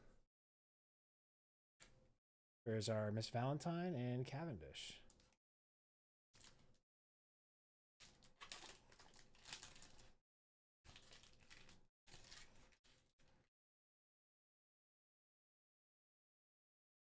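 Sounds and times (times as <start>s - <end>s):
foil wrapper crinkling and tearing: 6.4s - 6.8s, 8.0s - 10.2s, 10.9s - 13.4s.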